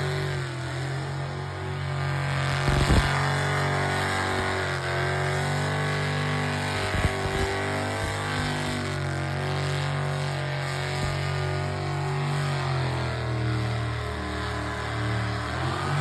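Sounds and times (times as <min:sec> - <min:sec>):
car engine idling and revving: 0:00.0 - 0:16.0.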